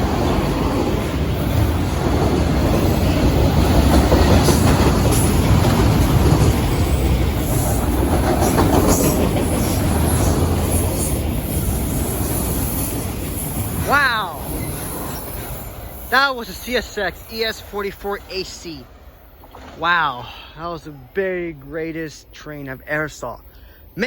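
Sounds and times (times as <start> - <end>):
wheels clacking over rail joints: 0.0 - 18.2
freight train rumble: 0.0 - 24.0
high wheel squeal: 9.6 - 17.6.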